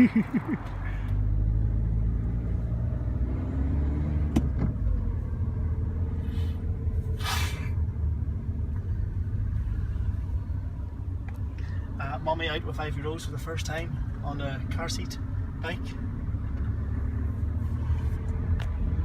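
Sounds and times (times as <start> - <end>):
car engine rumbling: 0.0 - 19.0
brief hiss: 6.2 - 7.8.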